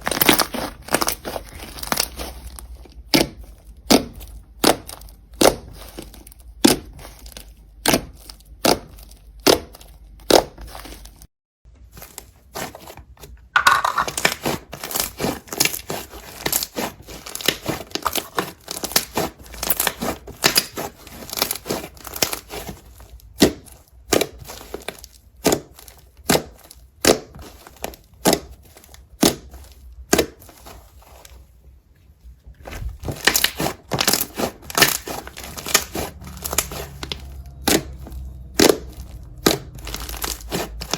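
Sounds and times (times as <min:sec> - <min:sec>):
slime crackling and popping: 0:14.1 - 0:30.7, 0:33.0 - 0:40.9.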